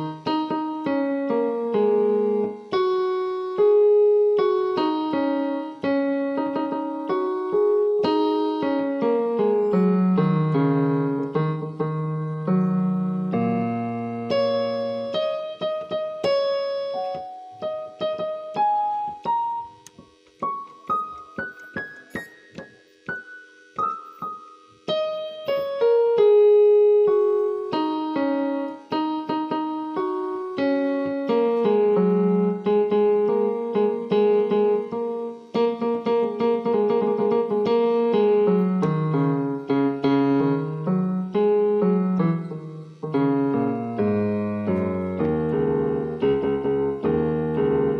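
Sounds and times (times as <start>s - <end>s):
piano music: 0.0s - 47.9s.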